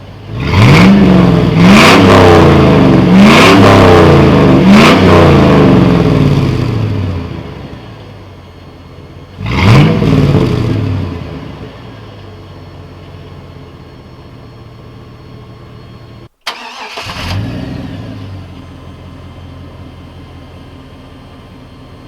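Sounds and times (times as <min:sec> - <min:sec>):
pickup engine exhaust note: 0:00.3 - 0:08.2.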